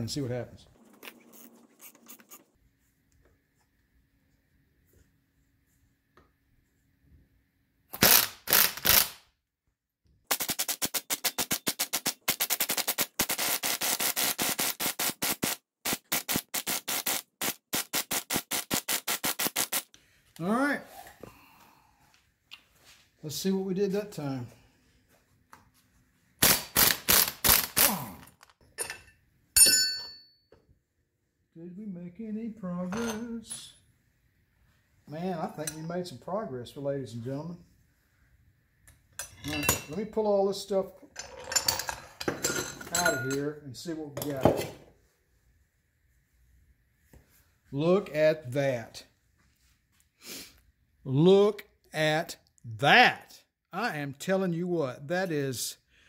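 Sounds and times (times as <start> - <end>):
impact wrench bursts: 8.0 - 9.2, 10.3 - 19.9, 26.4 - 28.2.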